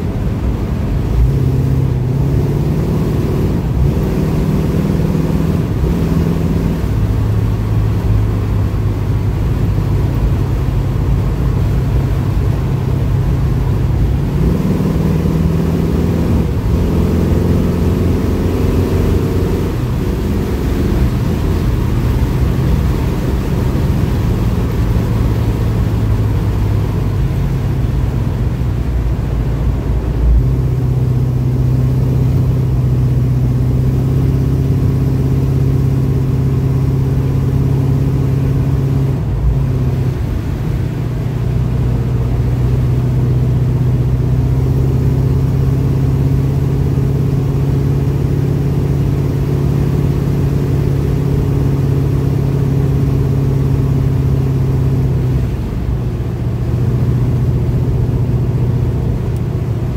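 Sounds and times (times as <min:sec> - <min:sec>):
car engine droning: 0:00.0 - 0:59.9.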